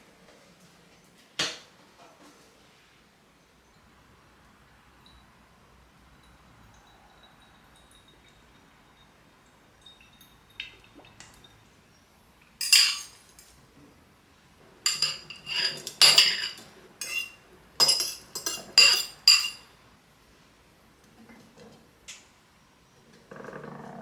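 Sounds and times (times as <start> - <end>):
cutlery clinking against dishes: 12.6 - 13.5, 14.8 - 19.7.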